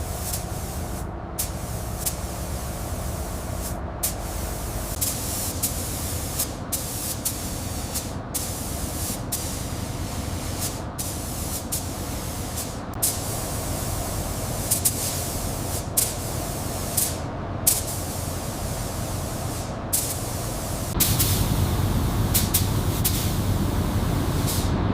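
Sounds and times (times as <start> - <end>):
hissing spray: 0.0 - 24.7
low rumble: 21.0 - 24.9.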